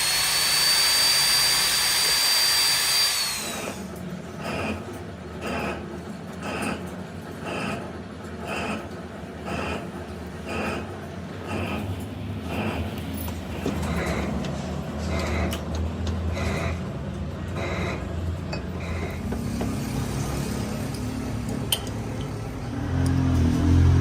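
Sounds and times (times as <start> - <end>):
machine tool humming: 0.0 - 4.9
metal cutting scrape: 0.0 - 24.0.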